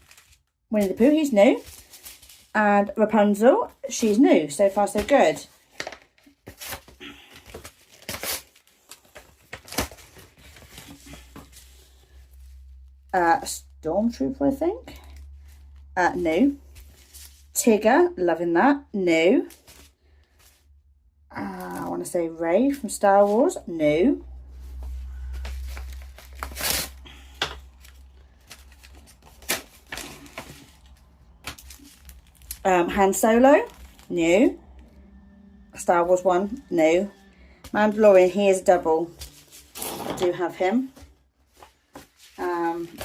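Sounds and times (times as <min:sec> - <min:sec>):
plastic wrapping crinkling: 0:00.0 - 0:02.6, 0:24.8 - 0:34.6
low steady hum: 0:08.8 - 0:43.0
sticker packet rustle: 0:27.8 - 0:34.1.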